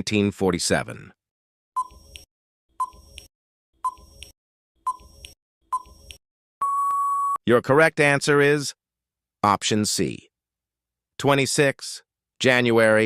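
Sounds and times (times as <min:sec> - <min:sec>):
electronic timer ticks: 0:04.9 - 0:06.2
long steady beep: 0:06.6 - 0:07.4.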